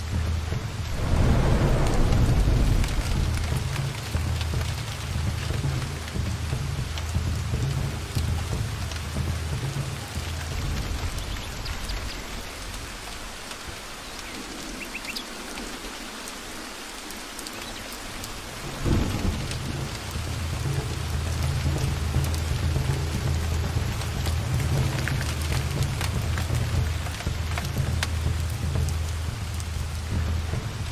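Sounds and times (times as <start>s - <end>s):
steady rain falling: 0.0s - 30.9s
low rolling thunder: 0.2s - 13.9s, 18.5s - 30.9s
loud thunderclap: 0.7s - 6.0s, 18.6s - 21.9s.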